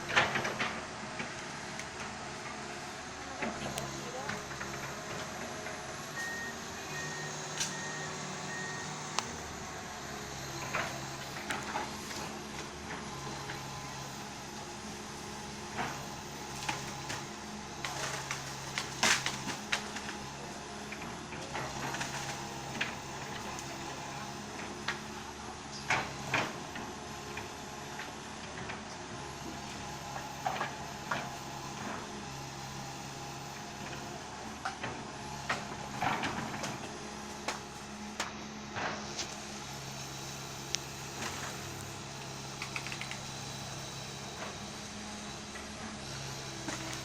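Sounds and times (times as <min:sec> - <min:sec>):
excavator diesel engine running: 0:00.0 - 0:47.0
sharp cracks and clanks: 0:42.6 - 0:43.2.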